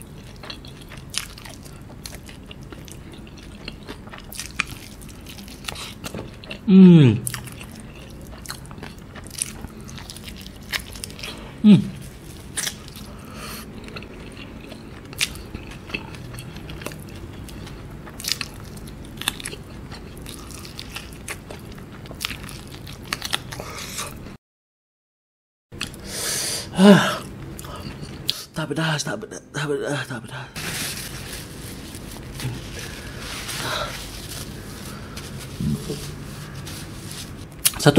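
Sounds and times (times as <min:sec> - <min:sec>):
chewing fried chicken: 0:00.0 - 0:24.2
brief vocal sound: 0:06.7 - 0:07.2.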